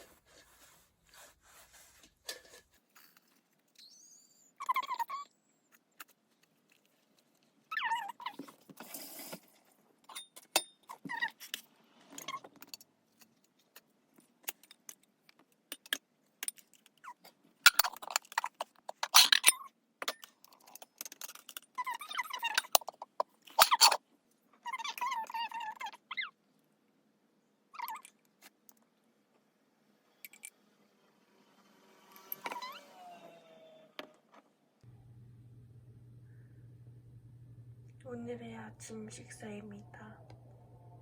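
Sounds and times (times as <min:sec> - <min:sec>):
utensils clinking and scraping: 0:01.8 - 0:03.4
short squeaks: 0:32.1 - 0:34.0.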